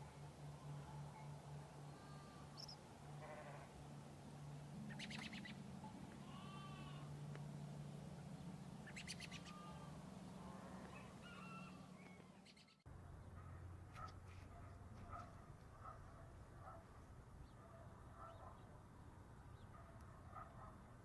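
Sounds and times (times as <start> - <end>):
farmyard animal calls and chirps: 0.0 - 3.8, 4.8 - 16.1
steady low hum: 0.0 - 21.0.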